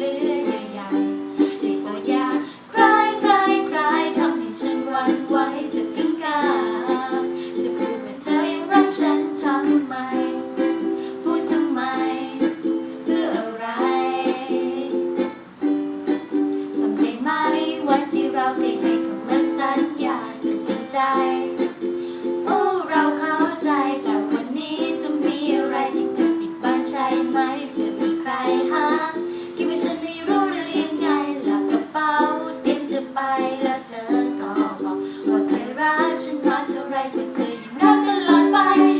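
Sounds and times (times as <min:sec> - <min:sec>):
person singing pop song: 0:00.0 - 0:15.2, 0:16.7 - 0:38.9
ukulele strumming chords: 0:00.0 - 0:38.9.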